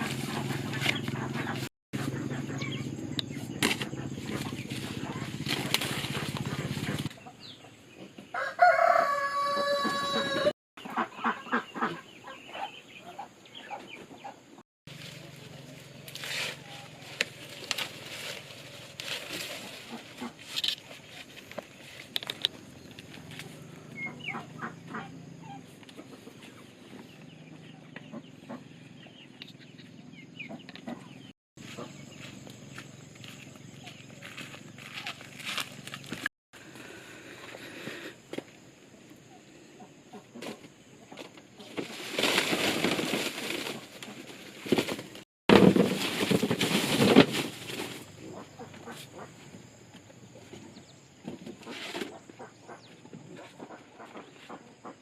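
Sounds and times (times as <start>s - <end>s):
chickens clucking: 0.0s - 15.8s, 16.6s - 21.8s, 22.4s - 33.0s, 37.4s - 45.0s, 46.5s - 55.0s
rooster crowing: 8.3s - 10.6s.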